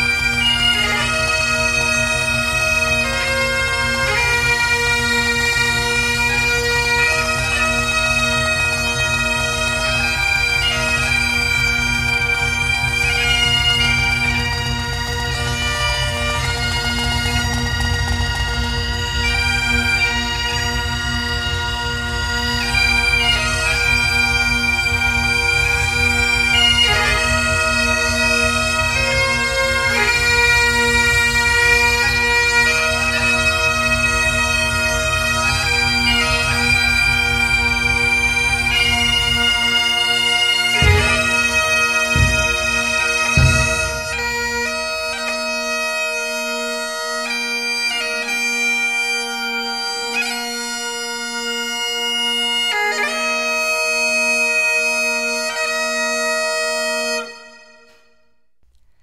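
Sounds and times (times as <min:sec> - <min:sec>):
bagpipes playing slow tune: 0:00.0 - 0:58.2
sharp thumps: 0:40.8 - 0:44.8.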